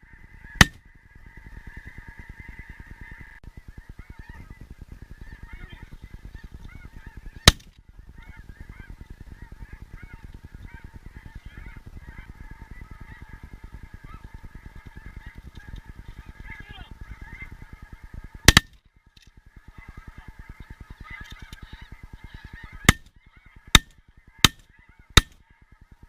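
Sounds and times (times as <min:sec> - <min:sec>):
flock of geese honking: 0:00.0 - 0:26.0
shotgun shot: 0:07.5 - 0:07.7.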